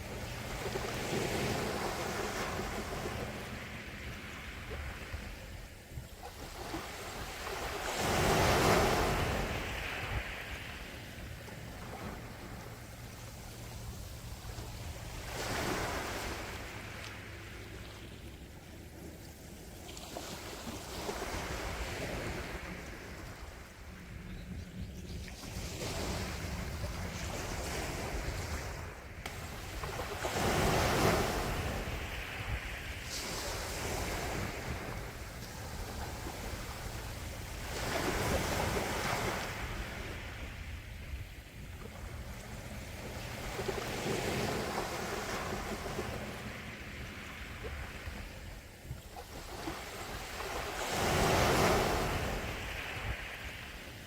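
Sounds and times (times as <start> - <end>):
waves breaking on shore: 0.0 - 24.3, 25.2 - 54.0
low steady rumble: 10.6 - 19.9.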